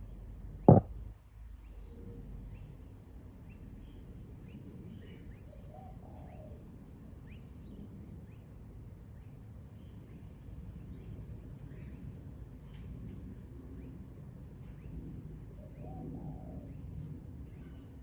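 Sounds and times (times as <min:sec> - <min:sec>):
sharp knock: 0:00.7 - 0:00.9.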